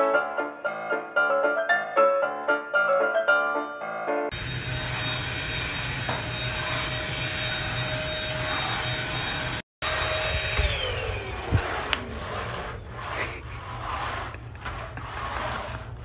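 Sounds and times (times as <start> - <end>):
electric motor whining: 4.3 - 13.2.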